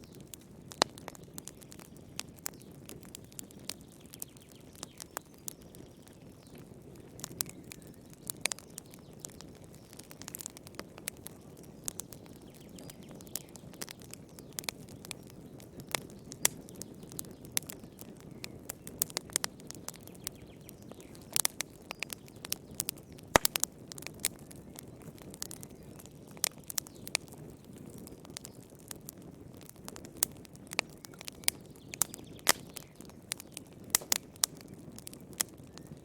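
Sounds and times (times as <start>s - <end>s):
fireplace fire crackling: 0.0s - 36.0s.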